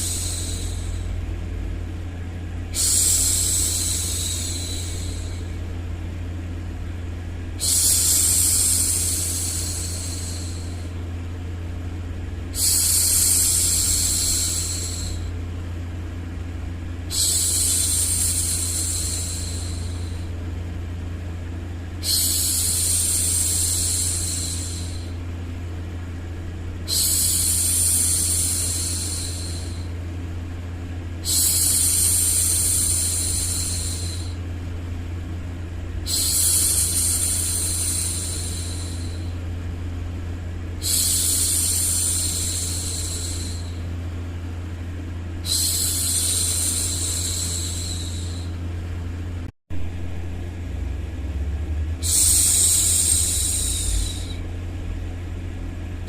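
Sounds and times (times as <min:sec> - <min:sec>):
low white noise hum: 0:00.0 - 0:56.0
woman shushing: 0:40.8 - 0:43.8, 0:45.4 - 0:48.6, 0:52.0 - 0:54.4.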